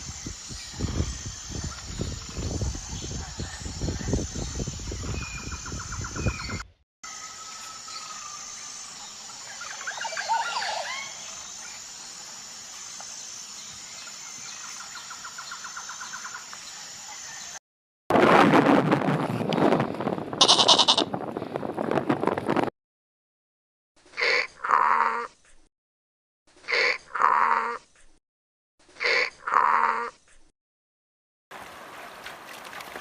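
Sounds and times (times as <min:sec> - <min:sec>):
birds chirping and trilling: 0:00.0 - 0:17.6.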